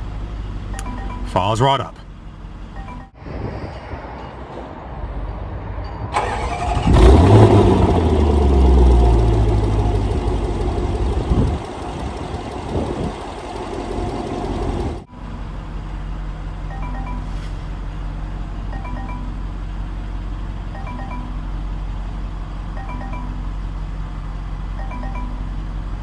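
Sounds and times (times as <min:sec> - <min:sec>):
car engine revving and idling: 0:06.2 - 0:16.3.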